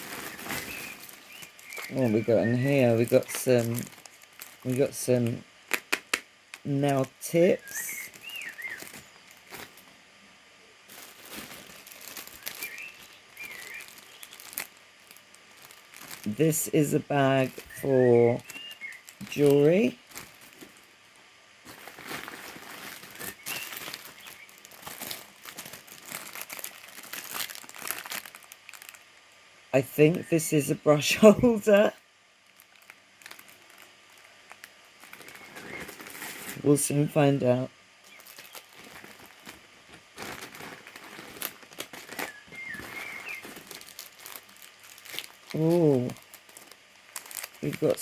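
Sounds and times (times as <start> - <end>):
packaging crinkling and rustling: 0.0 - 10.0, 10.8 - 29.3, 31.5 - 37.4, 38.0 - 48.0
faint high whistling chirp: 7.6 - 9.3, 12.3 - 14.4, 17.6 - 19.1, 42.2 - 43.5.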